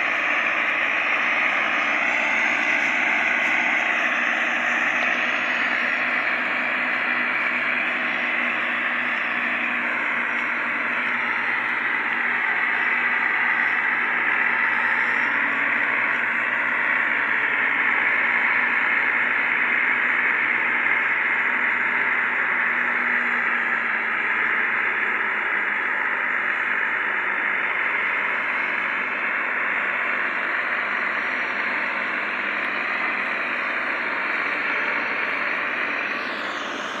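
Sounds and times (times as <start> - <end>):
tractor engines running: 0.0 - 37.0.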